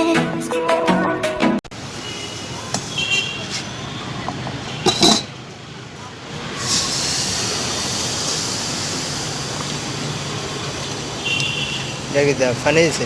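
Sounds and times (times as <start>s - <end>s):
steam hissing from pans: 6.5s - 11.1s.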